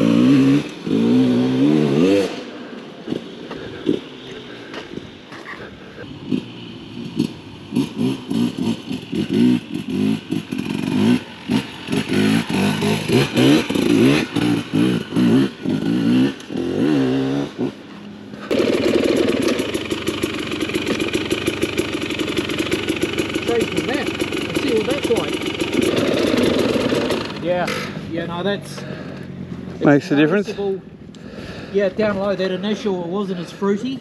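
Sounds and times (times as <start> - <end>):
dirt bike engine revving: 0.0 - 29.4
dirt bike engine idling: 0.0 - 34.0.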